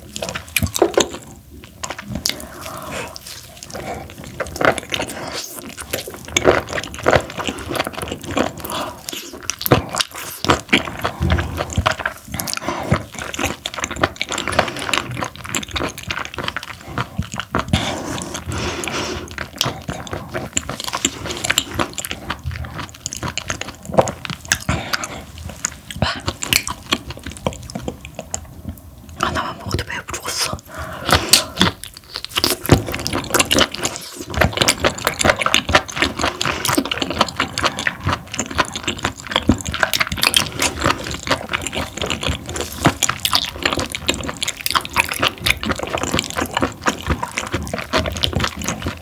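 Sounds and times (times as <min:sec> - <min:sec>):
wet chewing mouth sounds: 0:00.0 - 0:49.0.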